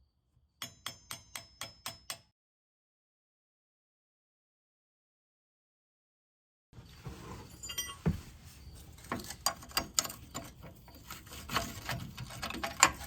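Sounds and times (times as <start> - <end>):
metal tools clinking: 7.3 - 13.0.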